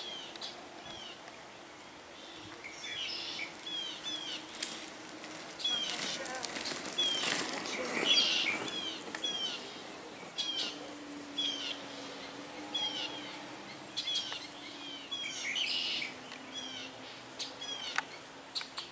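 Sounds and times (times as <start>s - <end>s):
bird chirping: 0.0s - 4.8s, 5.6s - 18.9s.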